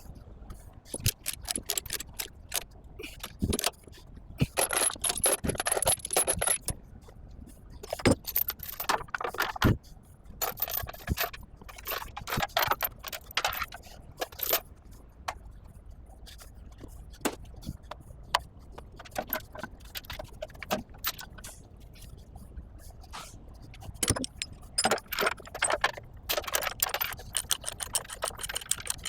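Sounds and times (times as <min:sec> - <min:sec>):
chains clanking against metal: 0:00.9 - 0:03.8, 0:04.4 - 0:06.8, 0:07.9 - 0:09.8, 0:10.4 - 0:14.6, 0:19.0 - 0:21.5, 0:23.8 - 0:29.0.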